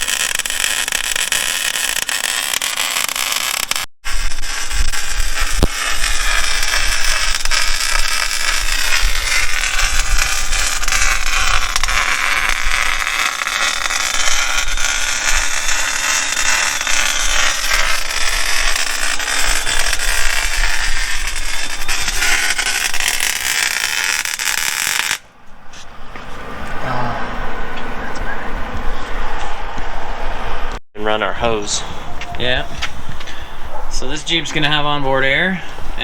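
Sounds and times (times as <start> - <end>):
welding arc crackling and hissing: 0.0 - 25.2.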